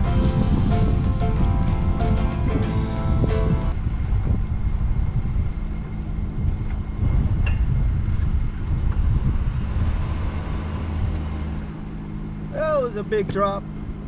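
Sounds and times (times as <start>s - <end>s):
suv engine humming: 0.0s - 3.8s
low rumbling: 0.0s - 12.6s.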